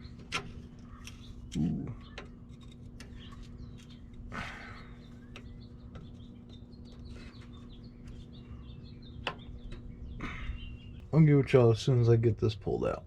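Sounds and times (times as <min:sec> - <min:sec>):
birds chirping: 0:00.0 - 0:13.0
steady low hum: 0:00.0 - 0:13.0.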